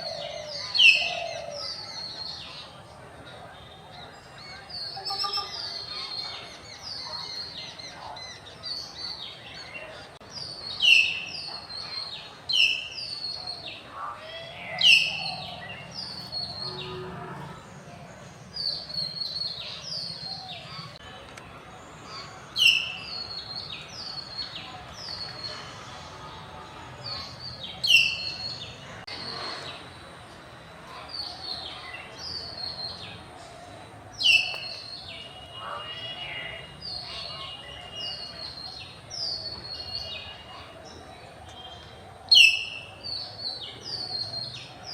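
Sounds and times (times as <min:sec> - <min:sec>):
mynahs calling: 0:12.6 - 0:21.0.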